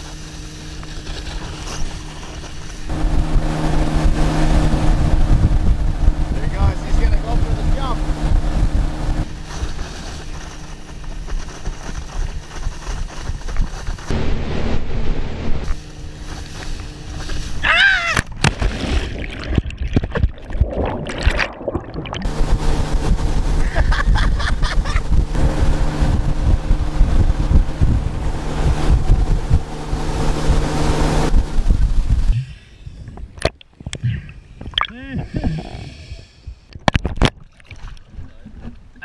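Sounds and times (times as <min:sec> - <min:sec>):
water rushing and splashing: 0:00.0 - 0:12.8, 0:20.5 - 0:32.4
motorboat engine running: 0:00.0 - 0:19.4, 0:22.2 - 0:32.4
wind buffeting microphone: 0:02.8 - 0:09.4, 0:22.2 - 0:32.4.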